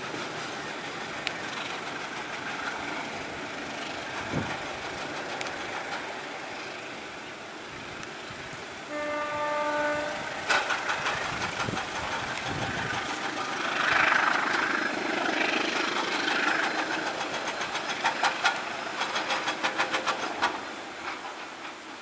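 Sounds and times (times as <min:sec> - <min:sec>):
hiss: 0:00.0 - 0:22.0
train wheels clicking over rail joints: 0:00.0 - 0:22.0.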